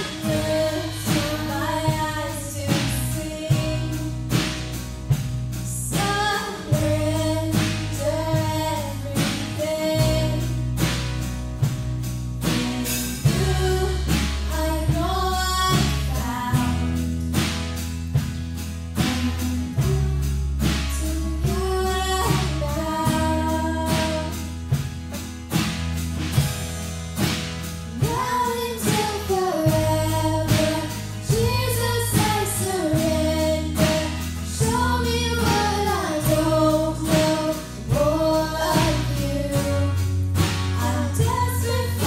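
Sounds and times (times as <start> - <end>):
female voices singing: 0.0 - 4.5, 5.7 - 10.6, 12.4 - 17.0, 19.0 - 24.4, 28.0 - 42.0
bass notes: 0.0 - 42.0
drum kit beat: 0.0 - 42.0
strummed acoustic guitars: 0.0 - 42.0.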